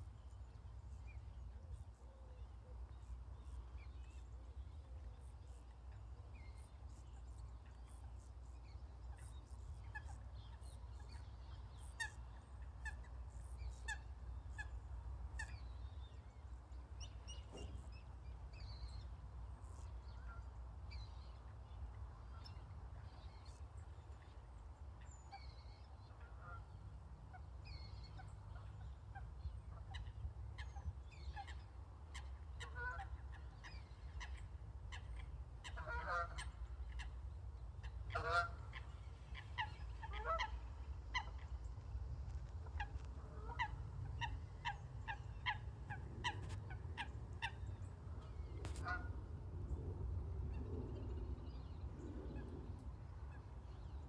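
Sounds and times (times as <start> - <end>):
steady low rumble: 33.2 - 54.0
birds calling: 38.1 - 41.5.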